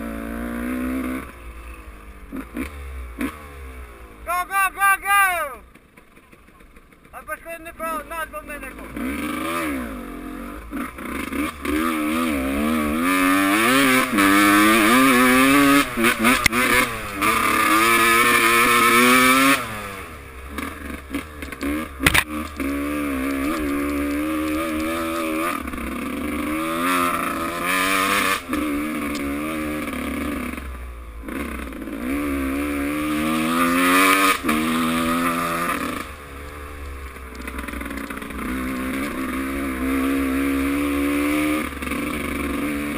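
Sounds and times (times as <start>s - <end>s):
motocross bike engines revving: 0.0s - 42.9s
sharp crack: 20.6s - 22.7s.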